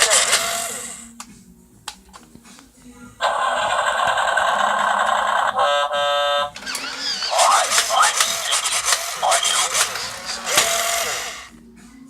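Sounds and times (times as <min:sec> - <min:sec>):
toy engine rumble sound effect: 0:00.0 - 0:01.0, 0:03.2 - 0:11.5
toy horn honk: 0:00.0 - 0:01.0, 0:04.5 - 0:11.4.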